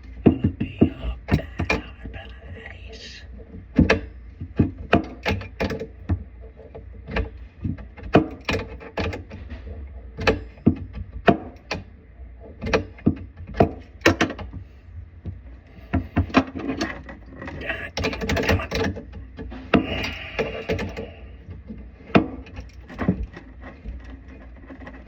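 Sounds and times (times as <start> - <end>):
steady low hum: 0.0 - 4.4, 17.4 - 22.2.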